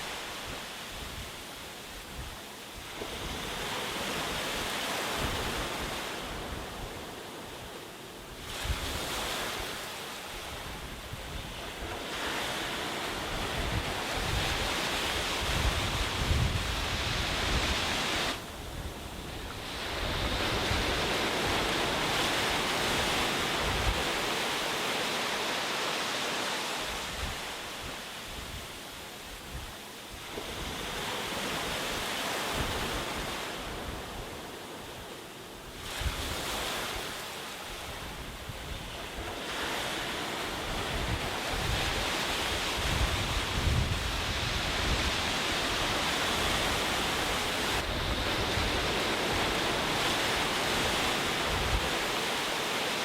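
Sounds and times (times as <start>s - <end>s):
waves breaking on beach: 0.0s - 53.0s
wind buffeting microphone: 10.5s - 24.5s, 37.8s - 52.3s.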